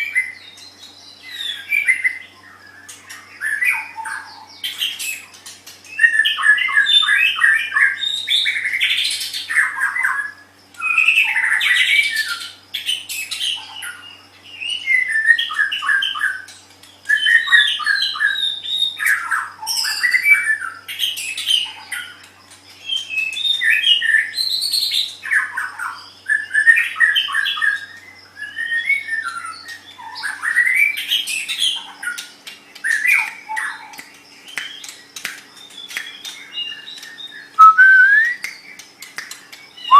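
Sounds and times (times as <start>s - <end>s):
songbird singing varied phrases: 0.0s - 39.9s.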